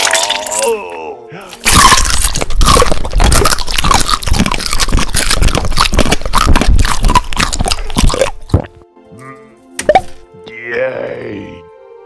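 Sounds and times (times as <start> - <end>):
loud chewing and crunching: 1.5 - 8.8.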